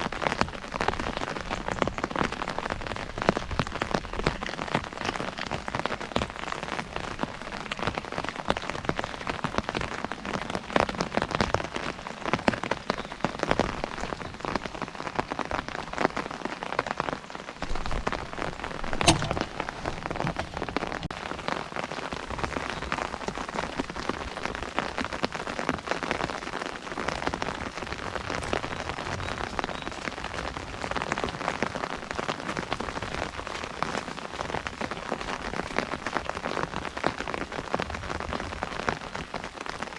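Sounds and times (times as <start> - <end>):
rain pattering on umbrella: 0.0 - 39.9.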